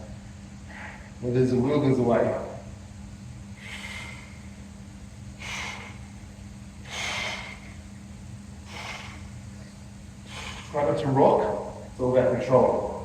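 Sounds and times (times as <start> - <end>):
steady low hum: 0.0 - 13.0
man breathing hard: 0.6 - 1.2, 3.5 - 11.0.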